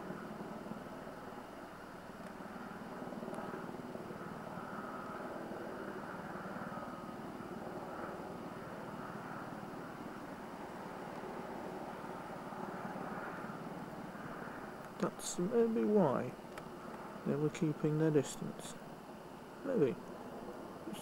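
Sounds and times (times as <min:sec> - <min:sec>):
helicopter rotor and engine drone: 0:00.0 - 0:21.0.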